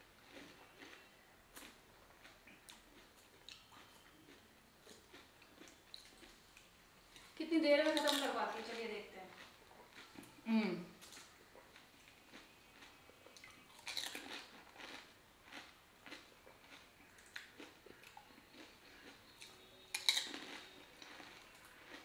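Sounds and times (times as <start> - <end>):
crunching crisp shells: 11.0 - 22.0.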